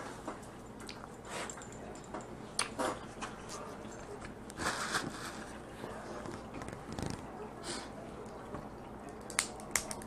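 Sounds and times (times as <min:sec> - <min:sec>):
crab shell cracking: 0:09.2 - 0:10.0.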